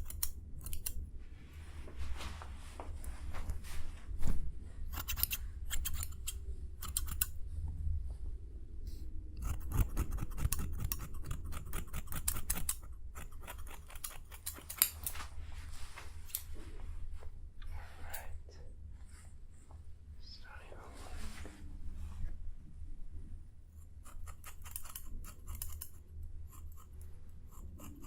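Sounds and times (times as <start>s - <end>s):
steady low hum: 0.0s - 28.0s
ear pick scraping and clicking: 4.9s - 7.4s, 9.4s - 15.2s.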